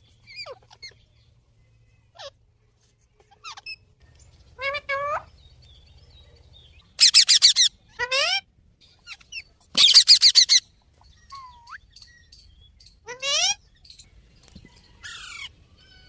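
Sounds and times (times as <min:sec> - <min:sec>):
parrot calling: 0:00.2 - 0:01.0, 0:07.0 - 0:10.7, 0:13.0 - 0:13.7.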